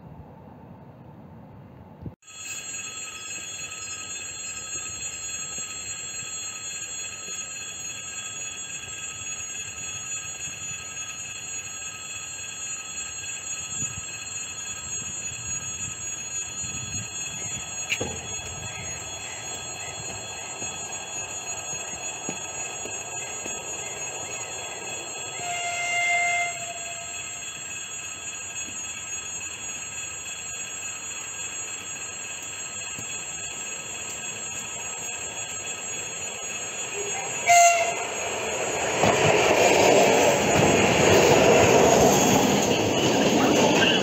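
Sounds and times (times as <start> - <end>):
train rumble on rails: 0.0 - 44.0
high ringing tones: 2.2 - 44.0.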